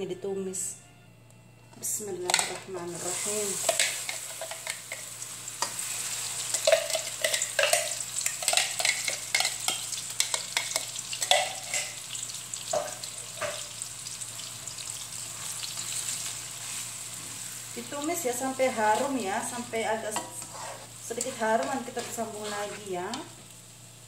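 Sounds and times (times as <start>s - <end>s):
spice paste sizzling in oil: 2.8s - 24.0s
spatula stirring in wok: 3.1s - 12.1s, 20.0s - 23.8s.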